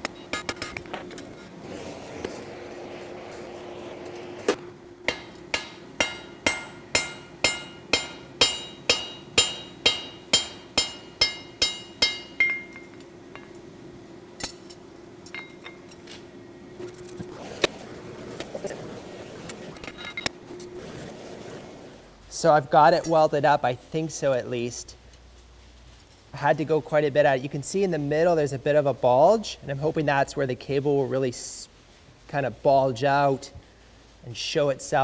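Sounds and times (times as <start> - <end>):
steady low hum: 0.0 - 32.6
hammer ringing on hot steel: 5.1 - 13.6.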